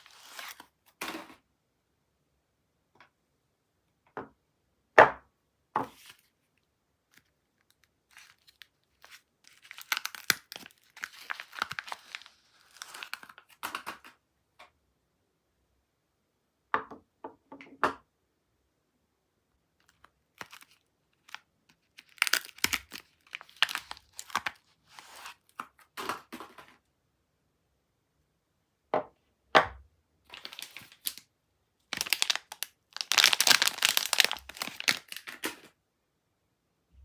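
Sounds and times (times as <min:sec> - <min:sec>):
wrapper crinkling and tearing: 0:00.0 - 0:01.1, 0:07.1 - 0:13.8, 0:19.8 - 0:25.6, 0:30.3 - 0:31.2, 0:31.9 - 0:35.7.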